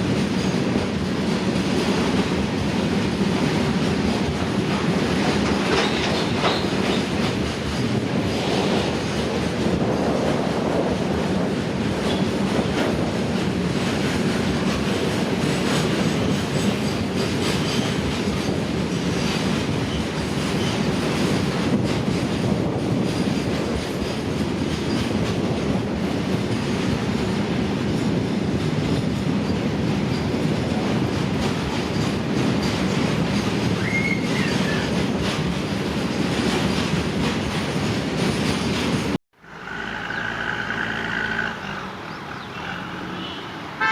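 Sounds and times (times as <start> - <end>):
train wheels rumbling and clattering: 0.0 - 43.9
train wheel squeal: 5.6 - 9.2, 16.0 - 21.0, 31.8 - 35.4, 38.4 - 43.6.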